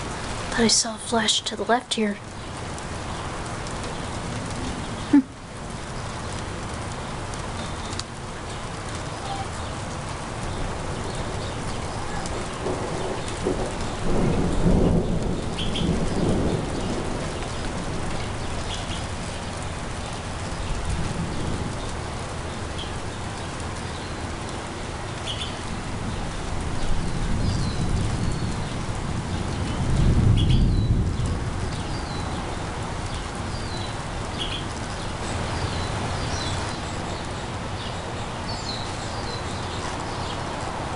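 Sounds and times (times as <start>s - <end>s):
distant thunder rumbling: 9.0s - 24.4s, 25.1s - 37.8s.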